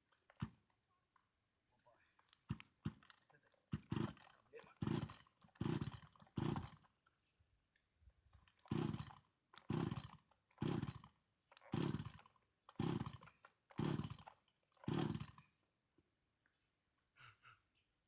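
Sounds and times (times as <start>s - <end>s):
chainsaw recoil starter whirring: 0.2s - 0.6s, 2.2s - 7.0s, 8.3s - 15.6s.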